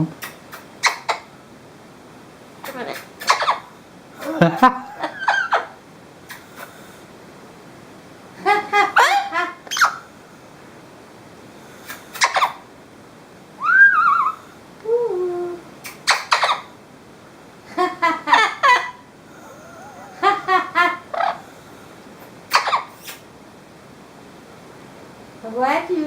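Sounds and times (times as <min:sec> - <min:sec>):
parrot squawking: 0:00.2 - 0:01.3, 0:02.6 - 0:04.4, 0:08.9 - 0:10.0, 0:12.1 - 0:12.7, 0:13.6 - 0:14.5, 0:15.9 - 0:16.8, 0:19.6 - 0:21.5, 0:22.5 - 0:23.2
parrot whistling: 0:13.6 - 0:14.5.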